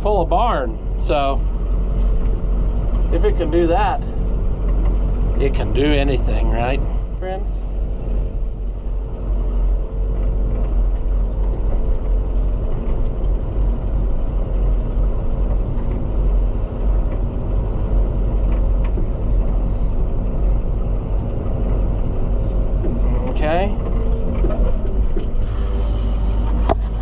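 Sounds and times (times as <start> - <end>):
tractor engine rumbling: 0.0 - 27.0.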